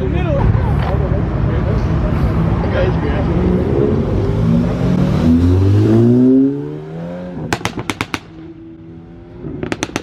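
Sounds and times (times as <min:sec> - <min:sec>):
car engine accelerating: 0:01.9 - 0:07.6
sharp pops and cracks: 0:09.6 - 0:10.0.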